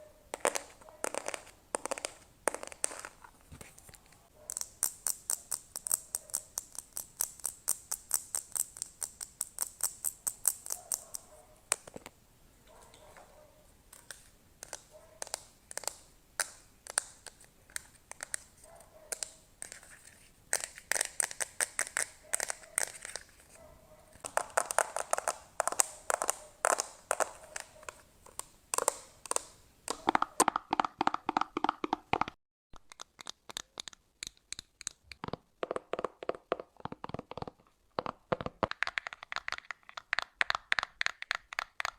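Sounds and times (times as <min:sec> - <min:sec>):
sharp tapping and scratching: 0:04.4 - 0:12.1, 0:24.2 - 0:41.9.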